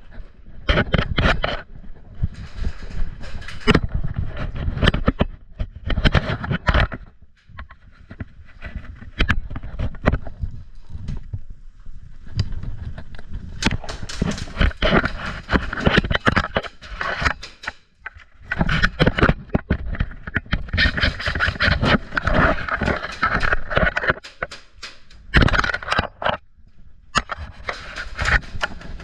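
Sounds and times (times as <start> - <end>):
scraping and rustling: 0.0 - 11.5, 12.1 - 26.4, 27.2 - 29.0
sharp clicks: 13.6 - 18.2, 20.8 - 26.1.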